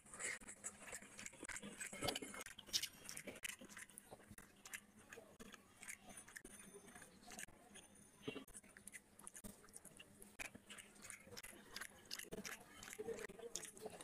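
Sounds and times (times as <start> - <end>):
wet chewing and mouth smacks: 0.7 - 7.8, 8.4 - 14.0
fingers squelching through wet rice: 8.5 - 14.0.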